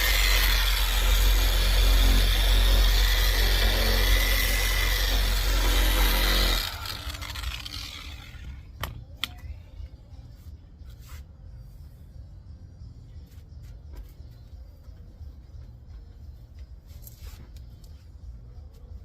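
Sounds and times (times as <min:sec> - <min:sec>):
polisher running and winding down: 0:00.0 - 0:08.6.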